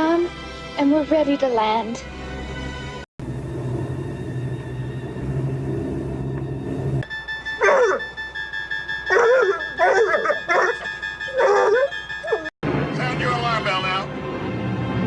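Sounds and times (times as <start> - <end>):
steady low hum: 3.2 - 7.1
dog whimpering and yelping: 7.6 - 8.1, 9.1 - 12.5.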